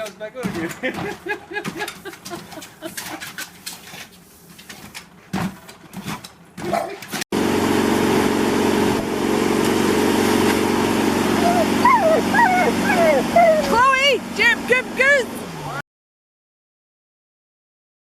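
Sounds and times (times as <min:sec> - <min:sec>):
loud steady motor hum: 0:07.3 - 0:15.8.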